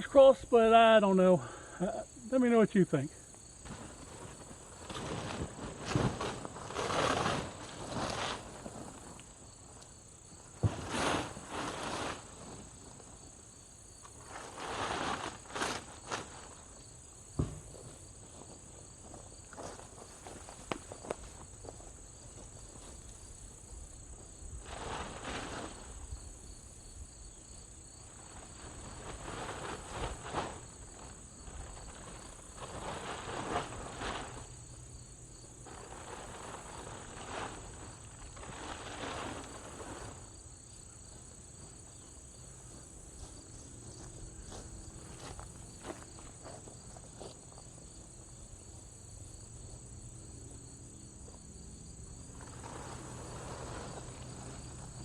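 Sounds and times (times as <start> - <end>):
tarp rustling and tearing: 3.6 - 9.5, 10.5 - 13.2, 14.2 - 16.8, 24.6 - 26.1, 28.1 - 34.8, 35.6 - 40.4, 52.3 - 55.0.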